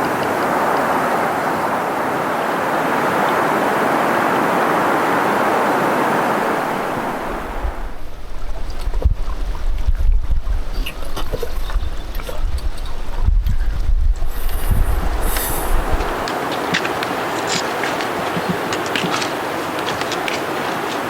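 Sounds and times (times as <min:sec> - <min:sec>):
rushing water: 0:00.0 - 0:21.0
wind buffeting microphone: 0:02.9 - 0:19.0.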